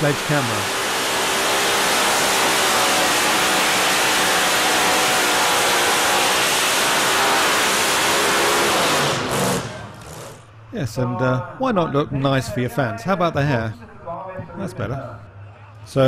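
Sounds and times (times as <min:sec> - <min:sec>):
loud rushing noise: 0:00.0 - 0:10.7
tractor engine at full throttle: 0:00.0 - 0:10.7.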